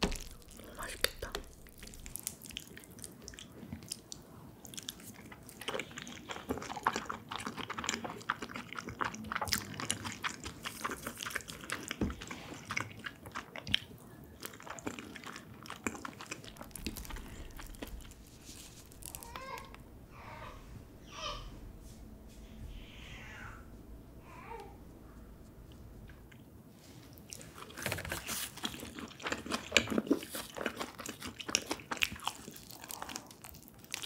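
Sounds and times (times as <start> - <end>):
chewing with wet mouth sounds: 0.0 - 19.9, 27.1 - 34.0.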